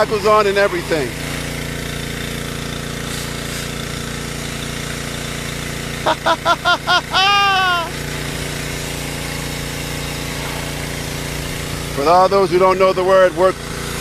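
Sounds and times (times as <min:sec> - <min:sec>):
pressure washer running: 0:00.0 - 0:14.0
high voice calling: 0:06.5 - 0:08.0.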